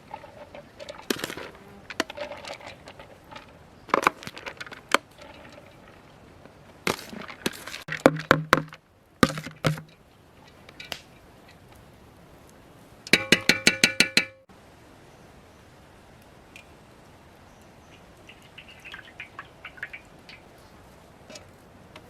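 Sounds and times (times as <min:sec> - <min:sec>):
sharp knocks and clicks: 0:07.9 - 0:10.0, 0:13.1 - 0:14.5.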